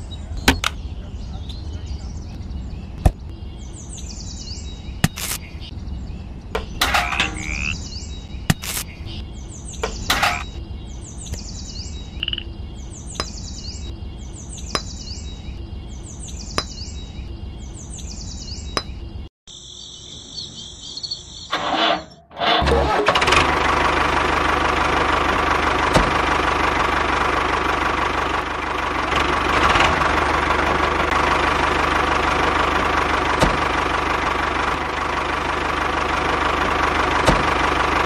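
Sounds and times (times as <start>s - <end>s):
bird chirping: 0.0s - 22.3s
loud noise: 22.4s - 26.8s.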